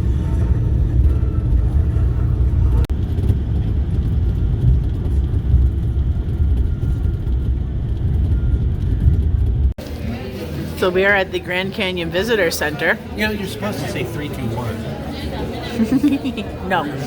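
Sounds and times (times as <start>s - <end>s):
bus road rumble from inside: 0.0s - 9.8s.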